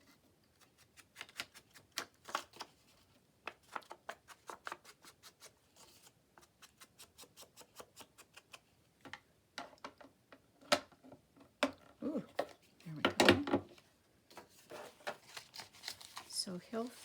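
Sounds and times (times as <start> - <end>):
paper rustle: 14.3 - 17.0.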